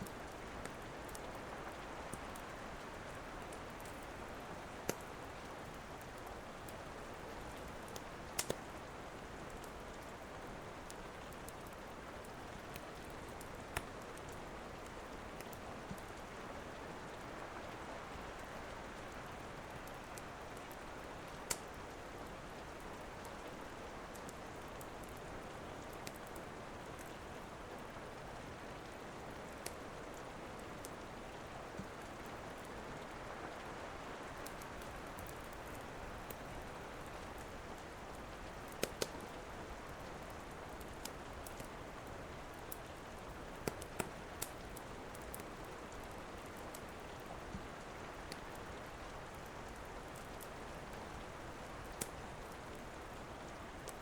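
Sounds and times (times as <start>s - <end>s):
steady rain: 0.0s - 54.0s
wood fire crackling: 0.0s - 54.0s.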